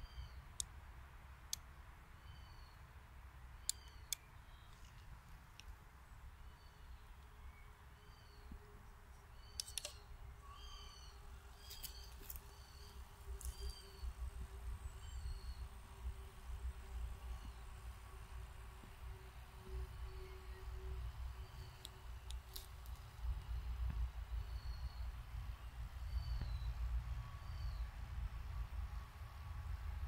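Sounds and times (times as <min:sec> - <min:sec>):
faint steady motor hum: 0:00.0 - 0:30.0
bird chirping: 0:02.2 - 0:02.9, 0:03.6 - 0:05.0, 0:06.4 - 0:15.8, 0:19.1 - 0:23.6, 0:24.3 - 0:25.2, 0:26.0 - 0:27.9
sharp clicks: 0:09.5 - 0:10.0.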